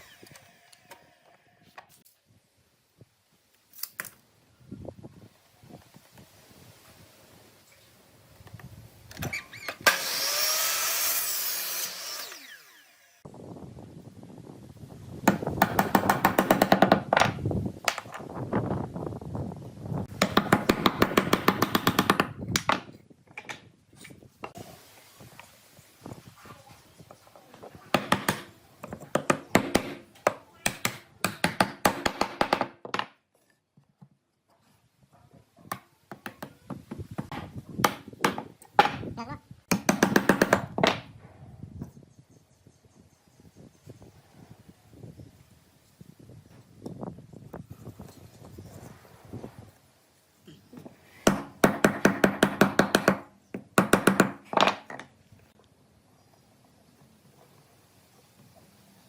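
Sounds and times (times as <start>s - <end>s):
power tool winding down: 9.8s - 13.2s.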